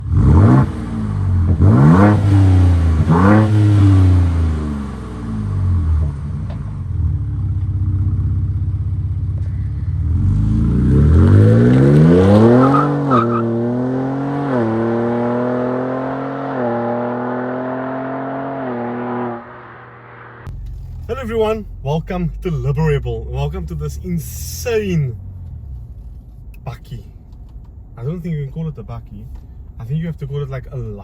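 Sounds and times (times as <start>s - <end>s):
engine accelerating through gears: 0.0s - 26.6s.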